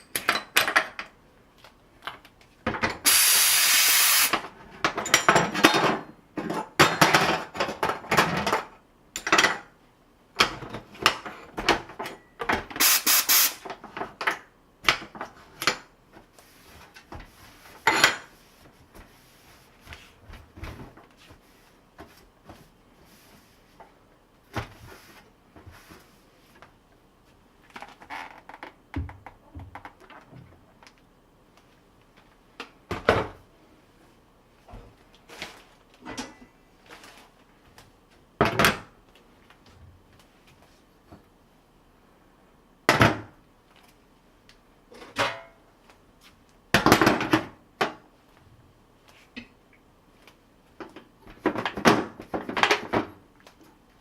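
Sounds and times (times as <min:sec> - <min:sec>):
steam cleaner hissing jets: 0:03.0 - 0:04.4, 0:12.8 - 0:13.6.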